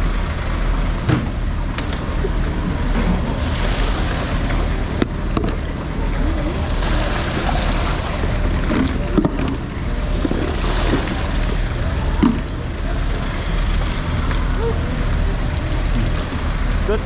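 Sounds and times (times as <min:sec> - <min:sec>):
distant voices: 0:00.0 - 0:17.0
low rumble: 0:00.0 - 0:17.0
water noise: 0:00.0 - 0:17.0
wind: 0:00.0 - 0:17.0.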